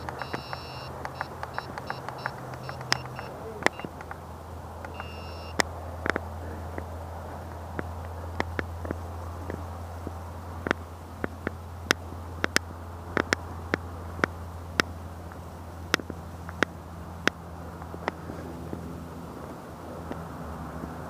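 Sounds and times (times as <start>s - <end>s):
sharp irregular clicks and taps: 0.0s - 6.9s, 7.5s - 18.8s
steady low hum: 0.0s - 21.0s.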